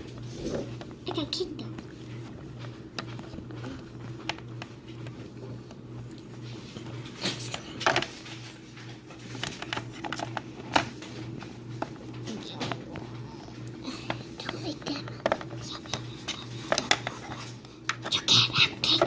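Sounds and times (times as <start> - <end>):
steady low hum: 0.0 - 19.0
plastic toys clicking and tapping: 14.1 - 17.3.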